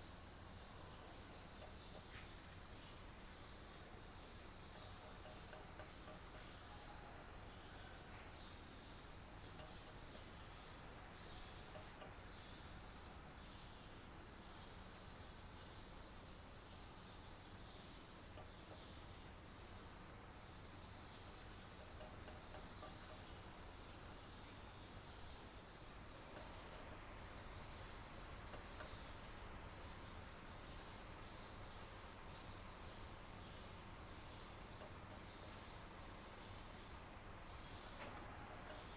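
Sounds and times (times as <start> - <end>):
crickets trilling: 0.0 - 38.9
low even hiss: 0.0 - 38.9.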